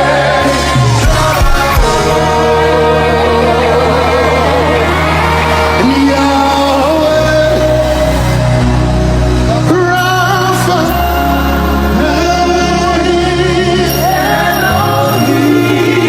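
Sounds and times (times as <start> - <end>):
sustained bass notes: 0.0 - 16.0.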